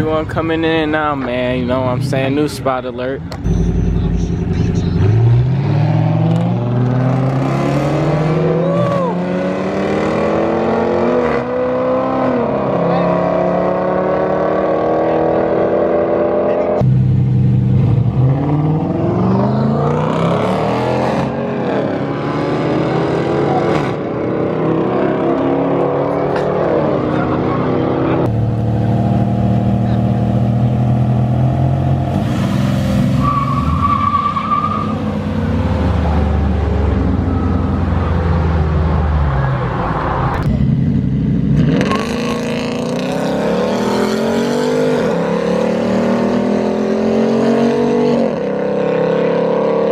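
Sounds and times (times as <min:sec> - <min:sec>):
car engines revving and accelerating: 0:00.0 - 0:49.9.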